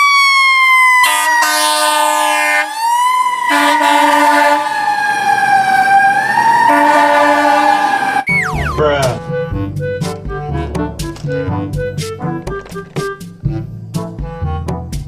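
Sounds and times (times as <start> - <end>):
fire truck siren wailing: 0.0 - 13.3
low horn tone: 3.5 - 4.8, 6.7 - 13.3.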